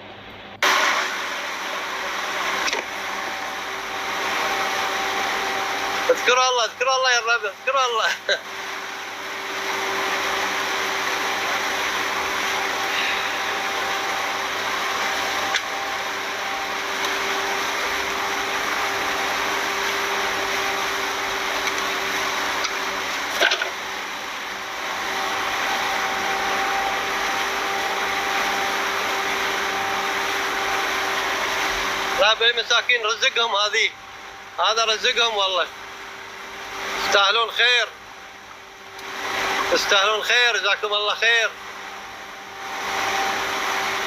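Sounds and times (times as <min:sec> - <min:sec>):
speedboat engine running: 0:02.6 - 0:32.6.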